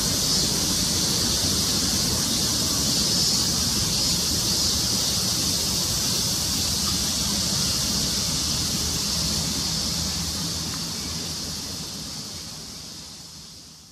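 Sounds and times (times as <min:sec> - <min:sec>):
steady high-pitched hiss: 0:00.0 - 0:13.9.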